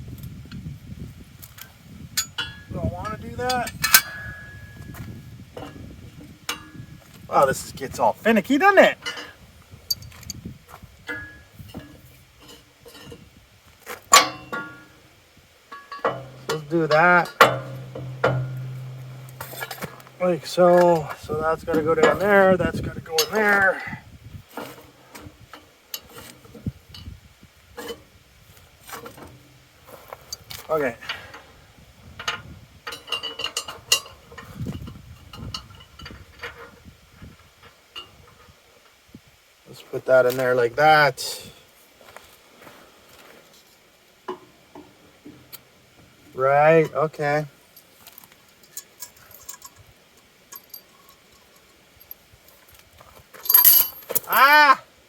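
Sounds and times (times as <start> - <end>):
metal parts clicking and clinking: 1.4 - 5.0, 7.9 - 10.4, 14.1 - 15.0, 15.7 - 22.4, 23.0 - 23.7, 24.5 - 27.1, 32.2 - 36.7, 47.7 - 54.4
metal parts clicking and knocking: 1.6 - 4.6, 32.2 - 34.5, 48.0 - 52.6, 53.4 - 54.4
loud metal clank with ringing: 2.2 - 5.0, 6.5 - 7.0, 11.1 - 12.0, 14.1 - 15.0, 15.7 - 20.2.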